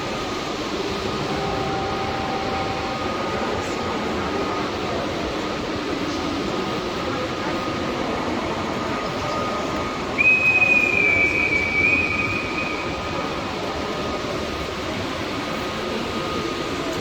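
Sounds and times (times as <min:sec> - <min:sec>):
train rumbling: 0:00.0 - 0:17.0
high squeal of train wheels: 0:08.9 - 0:15.0.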